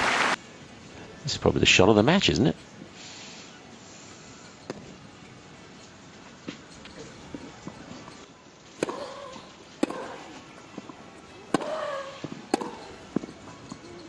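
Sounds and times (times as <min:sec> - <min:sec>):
racquet striking tennis ball: 0:08.8 - 0:13.3
tennis ball bouncing: 0:08.8 - 0:13.4.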